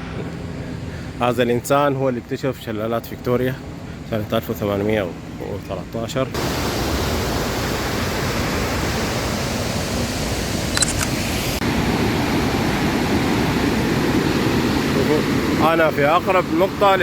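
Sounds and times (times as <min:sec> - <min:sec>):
waterfall roaring: 0:06.4 - 0:17.0.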